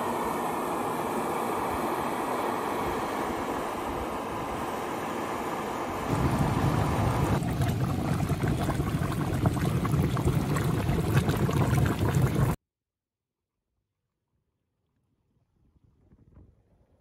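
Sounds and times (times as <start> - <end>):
hot spring bubbling and gurgling: 6.0 - 12.6.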